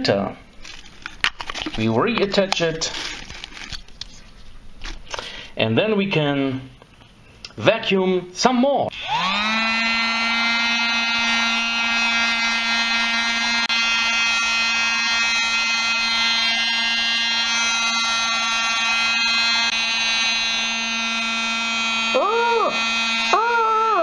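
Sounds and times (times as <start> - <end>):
mini vacuum cleaner motor whining: 8.9 - 24.0.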